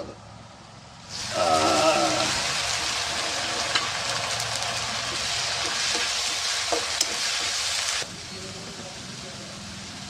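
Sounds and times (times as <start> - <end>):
paste sizzling in hot oil: 1.1 - 10.0.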